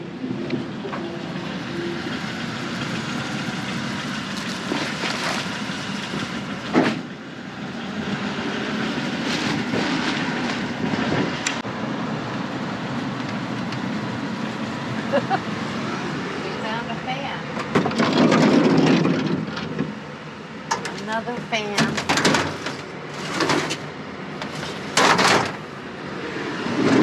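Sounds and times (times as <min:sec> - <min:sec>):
vehicle driving slowly: 0:00.0 - 0:21.6
loud clunk: 0:06.7 - 0:07.1, 0:24.4 - 0:25.6
rattles and knocks: 0:17.6 - 0:20.0, 0:21.8 - 0:23.8, 0:24.4 - 0:25.6.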